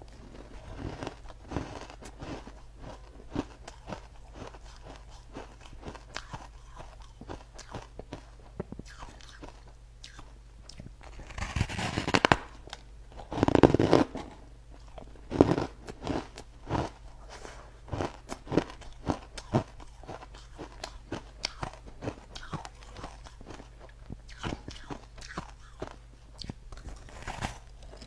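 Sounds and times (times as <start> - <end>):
ice crunched between teeth: 13.2 - 14.2, 24.3 - 28.0.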